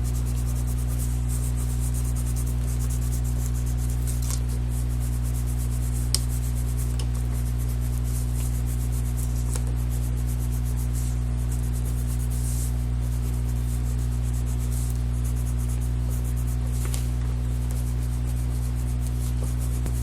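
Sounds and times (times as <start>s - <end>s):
crayon scratching on paper: 0.0s - 20.0s
low electrical hum: 0.0s - 20.0s.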